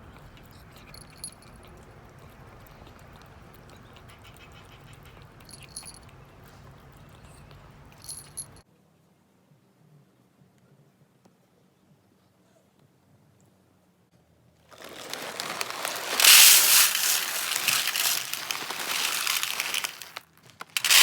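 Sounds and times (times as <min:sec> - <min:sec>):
small bell jingling: 0:00.8 - 0:01.8, 0:05.3 - 0:06.3, 0:07.9 - 0:08.6.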